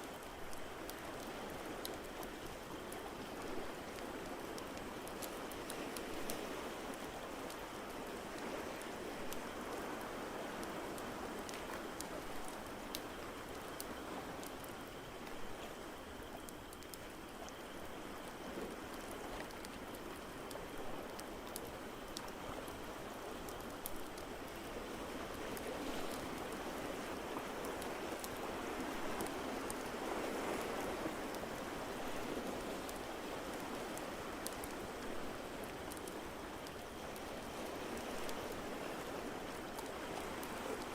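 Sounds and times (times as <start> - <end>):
crackling wood fire: 0.0 - 40.9
ocean waves: 18.6 - 40.9.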